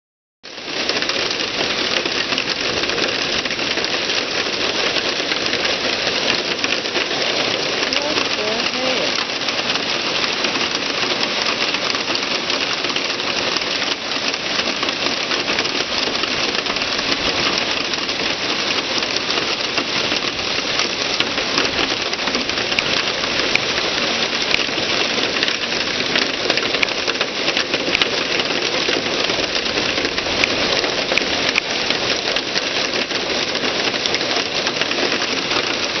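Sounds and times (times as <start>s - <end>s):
hail clattering: 0.5s - 36.0s.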